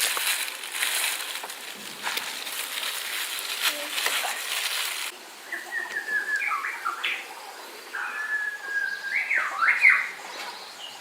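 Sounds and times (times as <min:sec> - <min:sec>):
bird singing: 0:05.4 - 0:11.0.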